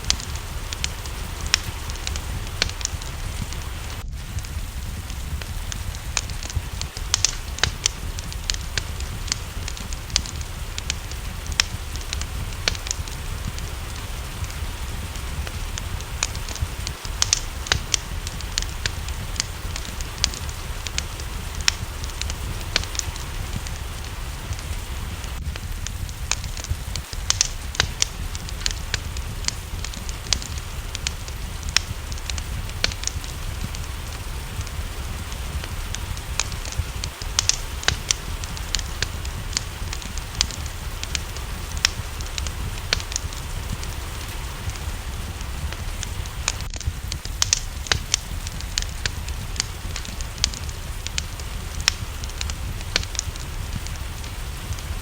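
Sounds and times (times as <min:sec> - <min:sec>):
low rumble: 0:00.0 - 0:55.0
rain falling: 0:00.0 - 0:55.0
wood fire crackling: 0:00.0 - 0:55.0.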